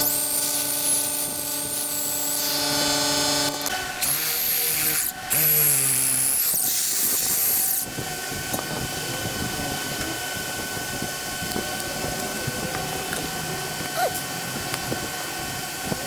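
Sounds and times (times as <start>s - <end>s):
drill motor whining: 0.0s - 16.0s
steady hum: 5.0s - 16.0s.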